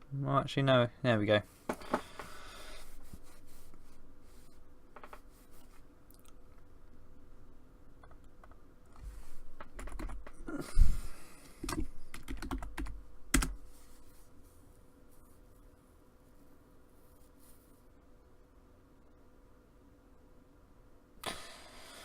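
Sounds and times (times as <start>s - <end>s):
typing on computer keyboard: 9.6s - 10.4s, 11.6s - 13.6s.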